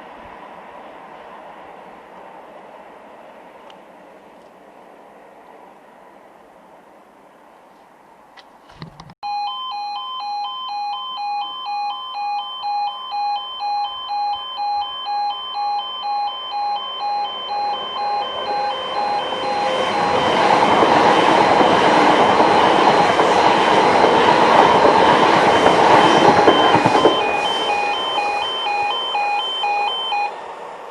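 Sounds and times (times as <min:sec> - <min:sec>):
train passing over crossing: 0:00.0 - 0:07.6, 0:10.3 - 0:30.9
level crossing alarm two-tone yodel: 0:09.2 - 0:30.4.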